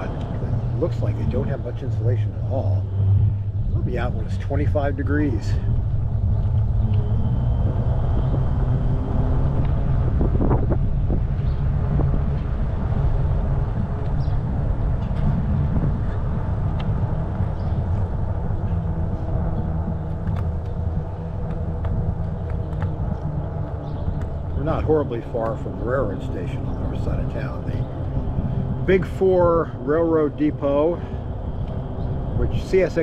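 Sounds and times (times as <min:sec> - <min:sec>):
wind rushing past microphone: 0:00.0 - 0:33.0
tyres rolling on pavement: 0:18.2 - 0:33.0.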